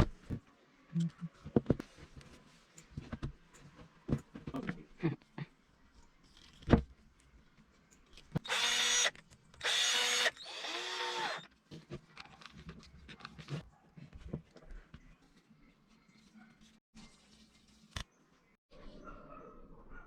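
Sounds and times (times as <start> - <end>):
power drill motor whine: 8.4 - 11.5.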